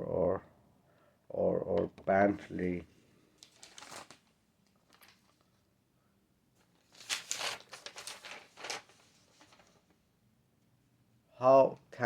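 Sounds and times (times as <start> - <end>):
paper rustling: 3.4 - 5.6, 6.6 - 10.0.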